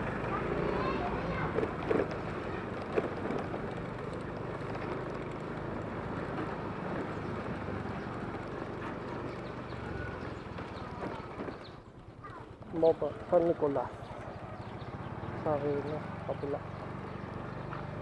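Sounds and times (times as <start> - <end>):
scooter engine running: 0.0 - 18.0.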